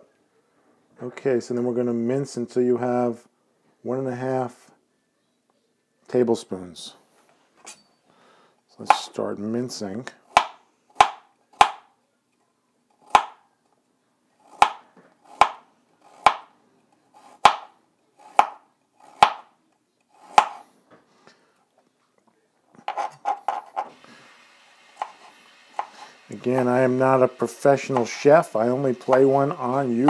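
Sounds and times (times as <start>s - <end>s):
knife chopping on cutting board: 10.3s - 11.8s, 13.0s - 13.4s, 14.5s - 16.5s, 17.2s - 19.5s, 20.2s - 20.6s, 25.0s - 26.0s, 27.8s - 28.2s.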